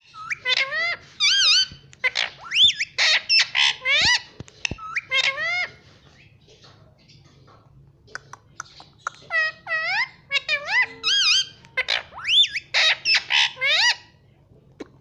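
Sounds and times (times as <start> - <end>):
parrot whistling calls: 0.1 - 5.7
parrot screeching: 0.1 - 5.8, 9.3 - 14.1.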